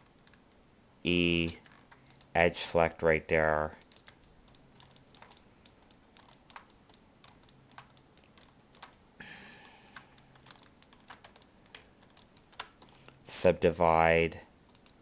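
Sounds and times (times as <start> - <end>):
keyboard keys clicking: 3.8 - 9.0, 9.9 - 13.0, 14.7 - 15.0
soft hiss: 9.2 - 10.8.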